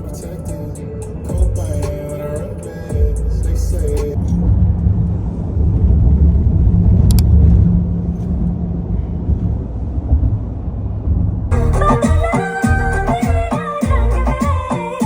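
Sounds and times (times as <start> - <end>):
music: 0.0 - 4.2, 11.5 - 15.0
vehicle road noise rumble: 0.0 - 11.9.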